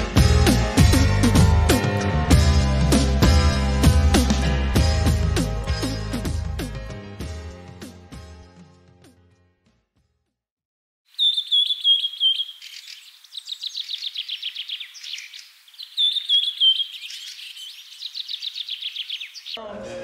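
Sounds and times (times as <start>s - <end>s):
songbird chirping and trilling: 11.1s - 19.7s.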